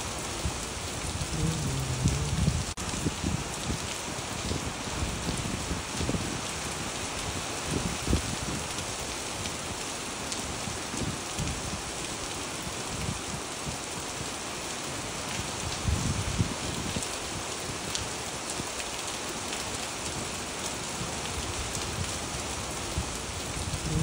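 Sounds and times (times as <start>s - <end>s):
rain on wet pavement: 0.0s - 24.0s.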